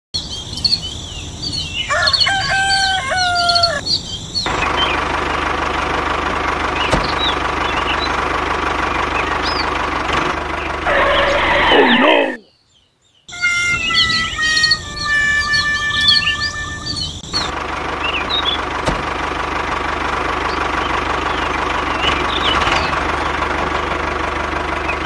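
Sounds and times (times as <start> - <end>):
birds chirping: 0.2 - 5.4, 6.5 - 25.0
rooster crowing: 1.8 - 3.9, 10.8 - 12.4
tractor engine running: 3.0 - 12.4, 13.3 - 25.0.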